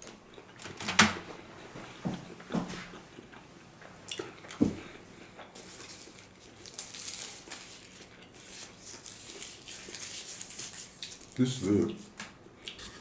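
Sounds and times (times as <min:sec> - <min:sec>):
mouth chewing food: 0:02.2 - 0:06.6.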